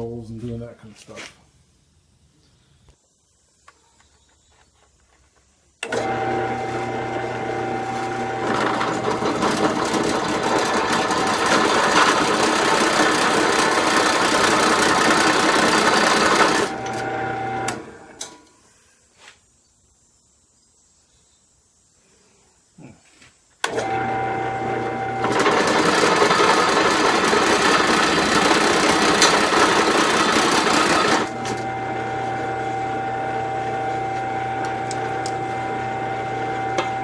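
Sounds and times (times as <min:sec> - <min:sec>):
drill press motor whine: 0:05.8 - 0:18.4, 0:23.6 - 0:37.0
drill bit cutting steel: 0:25.2 - 0:37.0.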